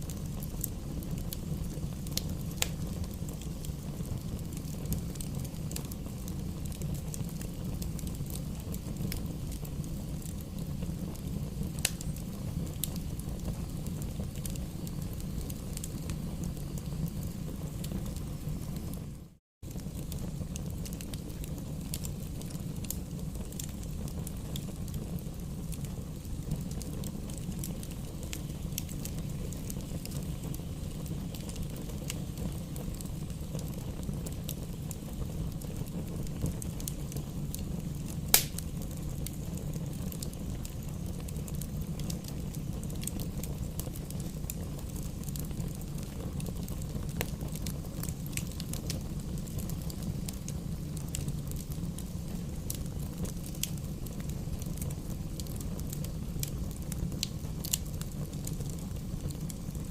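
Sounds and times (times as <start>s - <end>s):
burning wood crackling: 0.0s - 59.9s
fire low rumble: 0.0s - 59.9s
loud pop from fire: 38.2s - 40.3s.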